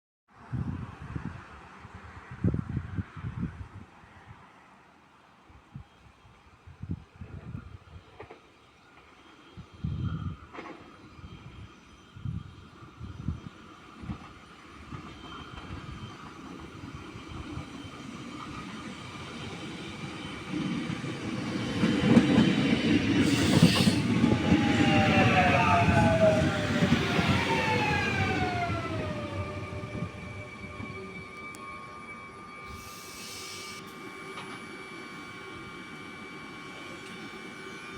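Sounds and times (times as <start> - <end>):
train rumble: 14.0 - 37.9
train brakes whining: 17.3 - 37.9
short hiss: 32.7 - 34.0.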